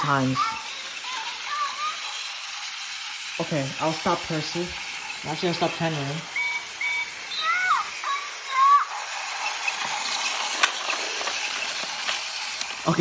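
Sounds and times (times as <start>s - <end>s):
toy trains whirring: 0.0s - 13.0s
short high squeaks: 6.3s - 10.5s.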